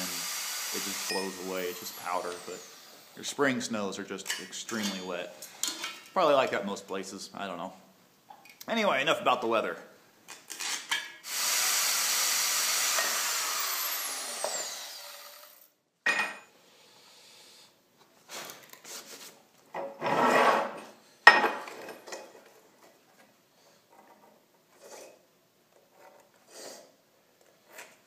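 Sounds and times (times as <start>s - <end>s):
power tool winding down: 0.0s - 3.2s, 11.2s - 15.7s
tool scraping and rubbing: 0.7s - 3.2s, 20.0s - 20.9s.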